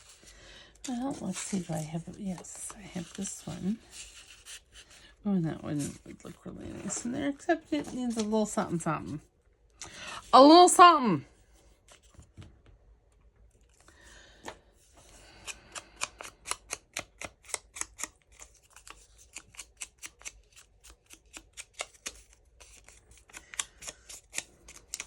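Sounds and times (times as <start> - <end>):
scissors snipping paper: 15.2 - 25.0.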